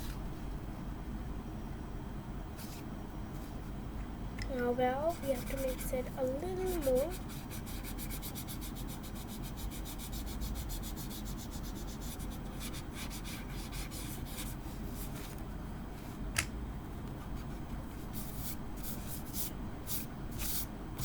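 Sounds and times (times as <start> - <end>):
pencil rubbing on paper: 5.0 - 15.3, 17.4 - 20.7.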